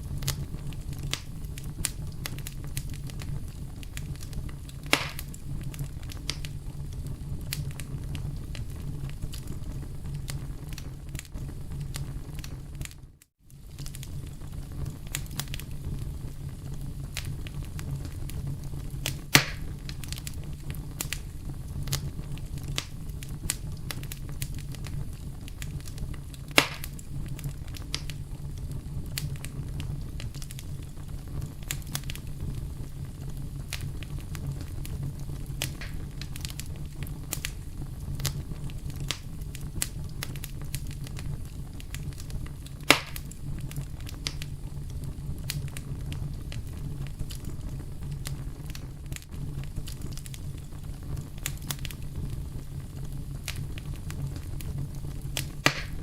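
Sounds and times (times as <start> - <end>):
campfire flames rumbling: 0.0 - 56.0
small fire crackles: 0.0 - 56.0
loud sharp wood snaps: 4.8 - 5.4, 19.0 - 19.7, 26.5 - 27.0, 35.6 - 36.0, 42.9 - 43.3, 55.4 - 56.0.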